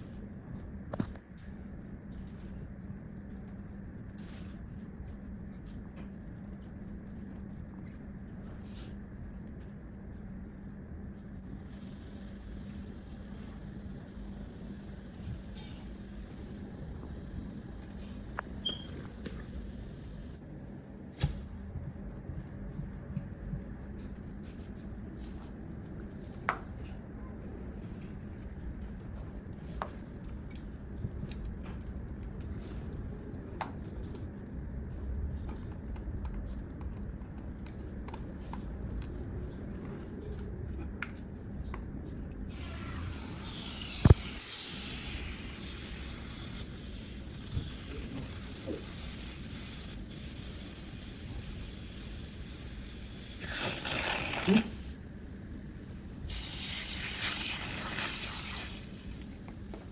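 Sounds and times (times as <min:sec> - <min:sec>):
high hiss of air: 0:11.4 - 0:20.4, 0:42.5 - 0:55.0, 0:56.2 - 0:59.2.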